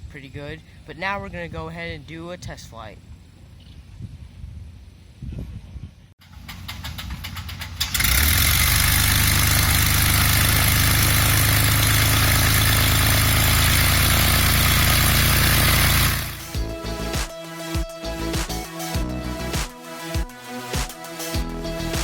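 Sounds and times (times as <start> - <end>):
engine starter cranking: 6.2 - 16.6
propeller plane engine running: 6.2 - 17.1.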